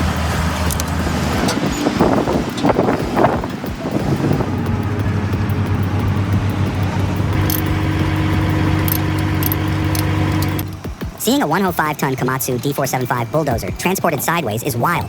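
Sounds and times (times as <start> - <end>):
heavy vehicle engine running: 0.0 - 11.2
higher steady tone: 4.5 - 11.7.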